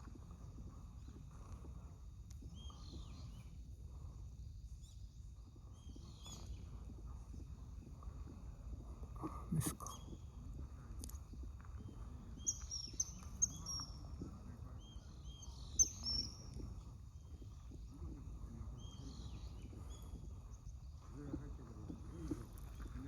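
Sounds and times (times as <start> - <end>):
birds chirping: 0.1 - 23.0
low outdoor rumble: 16.2 - 23.0.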